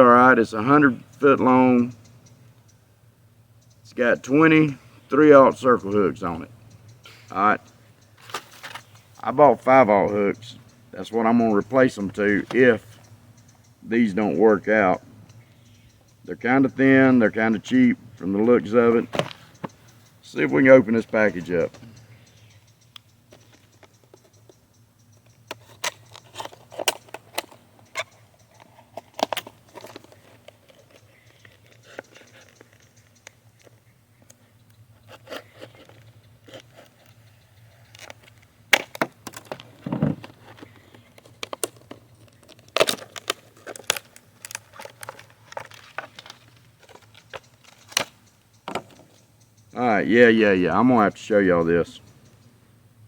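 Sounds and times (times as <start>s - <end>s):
packaging crinkling and tearing: 41.2s - 48.0s.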